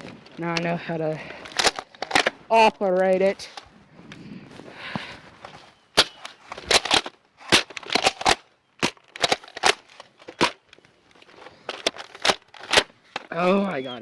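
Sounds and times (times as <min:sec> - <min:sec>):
toy blaster plastic clacks: 0:06.0 - 0:13.5.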